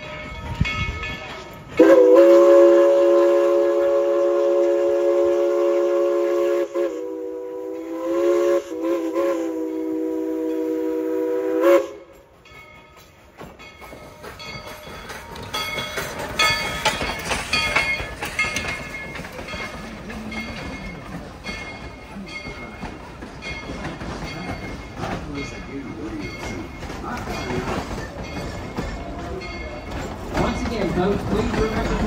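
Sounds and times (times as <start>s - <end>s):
steam locomotive whistle: 1.8s - 12.3s.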